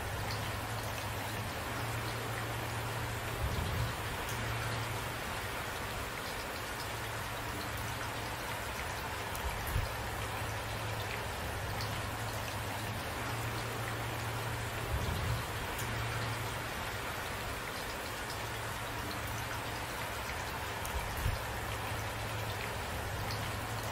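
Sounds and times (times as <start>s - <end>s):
steady rain: 0.0s - 23.9s.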